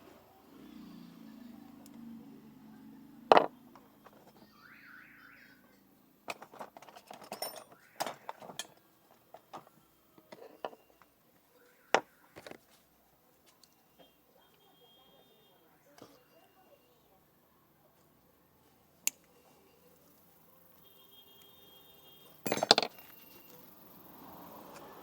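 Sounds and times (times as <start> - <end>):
squeaky warble: 4.1 - 5.8, 7.4 - 8.8.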